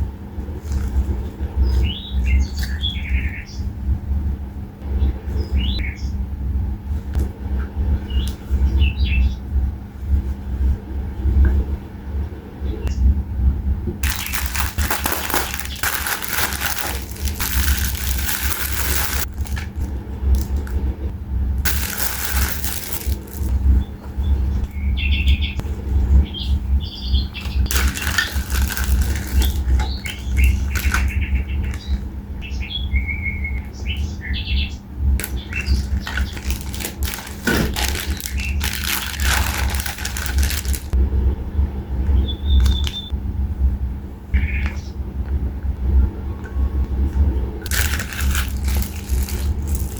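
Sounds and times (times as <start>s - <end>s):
steady low rumble: 0.0s - 49.9s
small birds chirping: 1.5s - 3.8s, 21.7s - 25.6s, 26.2s - 41.0s, 42.2s - 43.1s.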